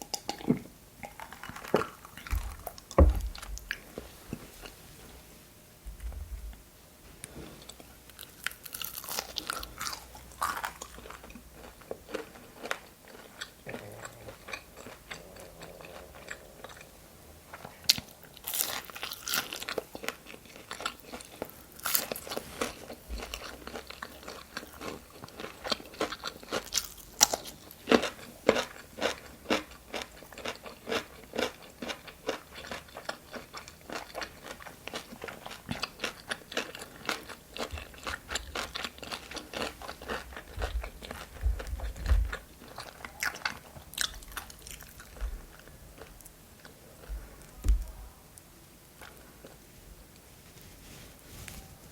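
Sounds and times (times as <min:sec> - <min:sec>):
crunchy chewing: 0:07.2 - 0:48.0
crunchy food bites: 0:08.2 - 0:15.2.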